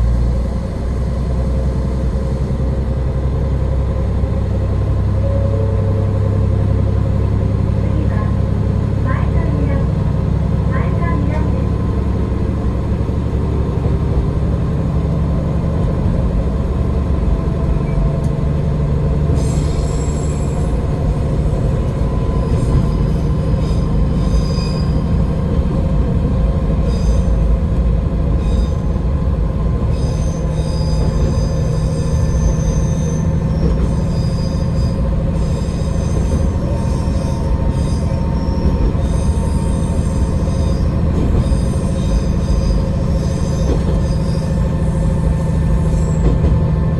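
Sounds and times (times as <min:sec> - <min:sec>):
rail rumble: 0:00.0 - 0:46.9
railcar engine drone: 0:00.0 - 0:46.9
high-pitched wheel squeal: 0:19.3 - 0:25.4, 0:26.8 - 0:29.0, 0:29.8 - 0:46.6.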